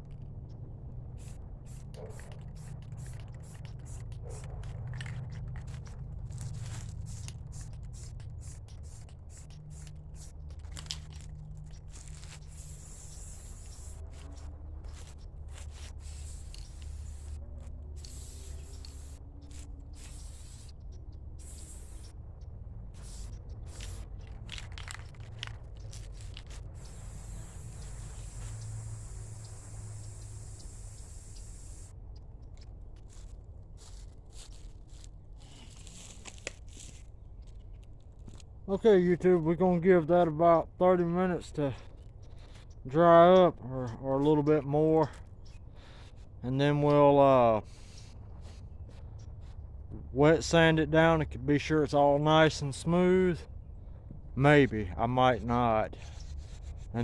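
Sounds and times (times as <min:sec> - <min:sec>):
spray paint can hissing: 0:01.2 - 0:17.4, 0:18.0 - 0:20.8, 0:21.4 - 0:22.1, 0:23.0 - 0:32.0, 0:47.7 - 0:48.6.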